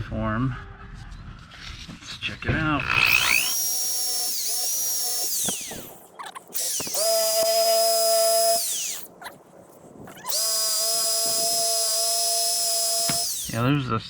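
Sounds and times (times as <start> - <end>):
drill spinning wire wheel: 2.8 - 13.8.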